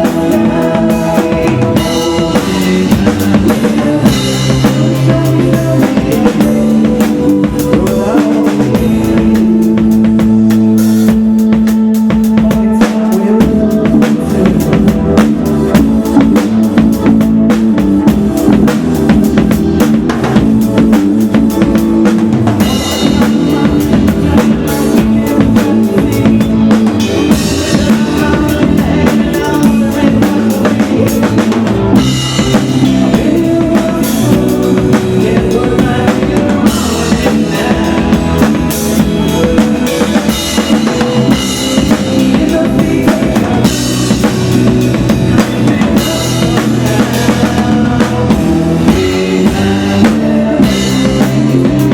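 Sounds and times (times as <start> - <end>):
live rock band playing: 0.0 - 51.9.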